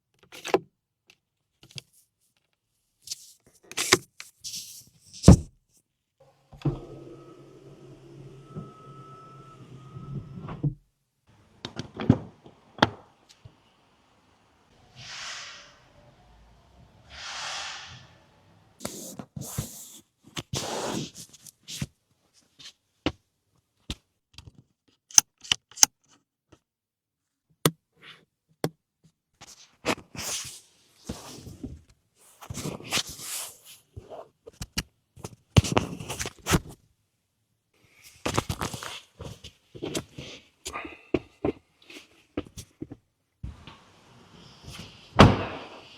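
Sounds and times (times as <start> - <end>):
soft rushing swishes: 14.7 - 18.8
short scrapes: 14.7 - 19.8.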